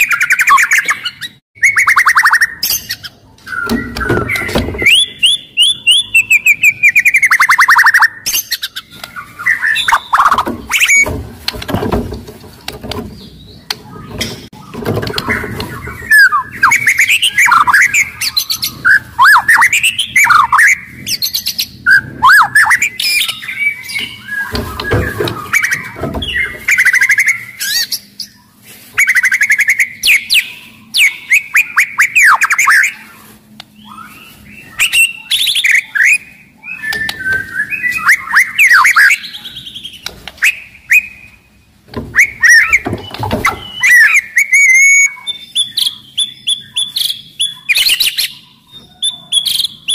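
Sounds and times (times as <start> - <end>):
songbird singing whistled notes: 0.0 - 11.1, 13.1 - 49.9.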